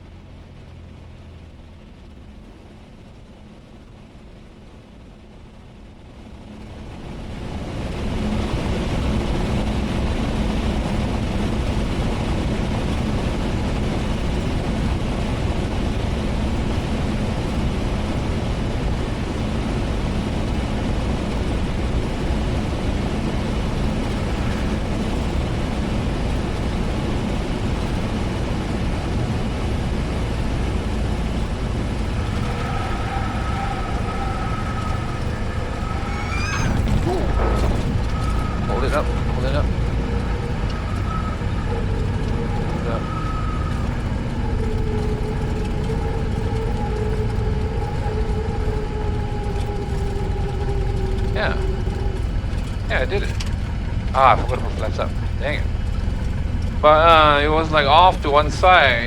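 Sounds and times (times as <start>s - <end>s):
aircraft engine drone in cockpit: 0.0s - 59.0s
thin whistling tones: 30.5s - 59.0s.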